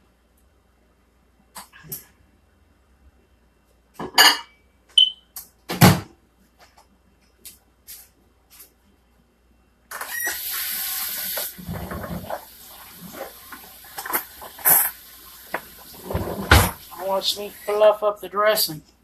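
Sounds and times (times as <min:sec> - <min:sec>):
brief high squeak: 0:10.0 - 0:10.4
steady rushing hiss: 0:10.5 - 0:18.7.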